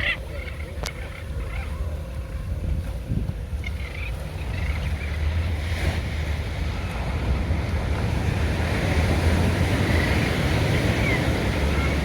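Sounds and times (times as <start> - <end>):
wind buffeting microphone: 0.0 - 12.0
sea surf washing in: 4.2 - 12.0.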